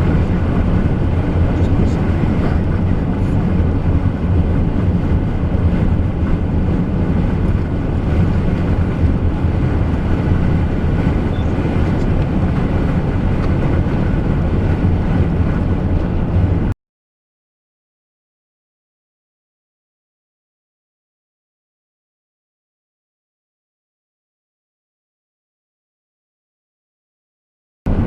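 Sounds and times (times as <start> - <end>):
road and engine rumble in car: 0.0 - 16.8
wind on vehicle: 0.0 - 16.8.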